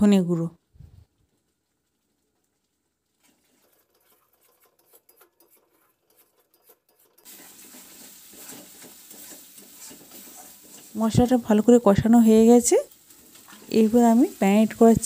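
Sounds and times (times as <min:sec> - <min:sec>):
paste sizzling in butter: 0:02.0 - 0:15.0
metal spatula scraping: 0:03.2 - 0:15.0.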